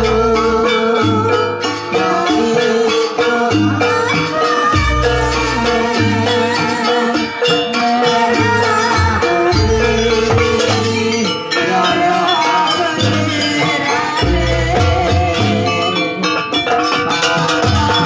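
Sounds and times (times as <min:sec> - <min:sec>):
gamelan dance music: 0:00.0 - 0:18.0.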